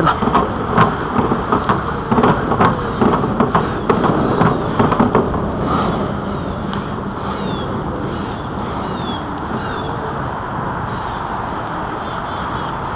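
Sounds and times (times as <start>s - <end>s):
bicycle knocks and rattles: 0.0s - 6.1s
wind rushing over microphone: 0.0s - 12.9s.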